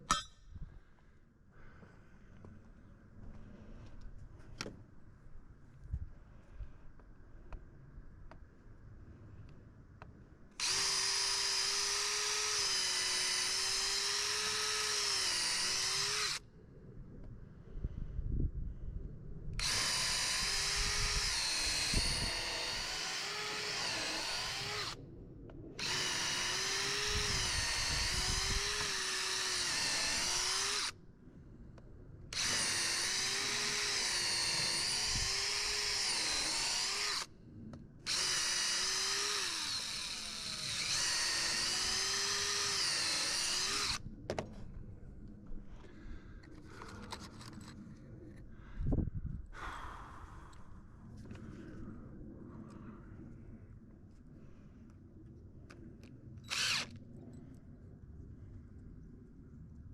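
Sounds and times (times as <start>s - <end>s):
electric drill running: 10.6s - 16.4s, 19.6s - 25.0s, 25.8s - 30.9s, 32.3s - 37.3s, 38.1s - 44.0s, 56.5s - 56.9s.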